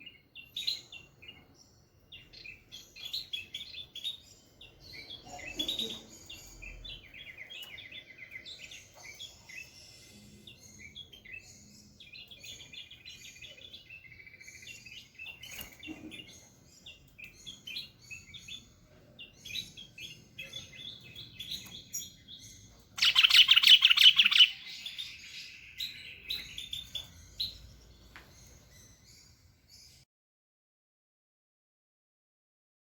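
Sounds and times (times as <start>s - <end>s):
bird chirps and whistles: 23.0s - 25.1s
loud rapid bird trill: 23.0s - 27.7s.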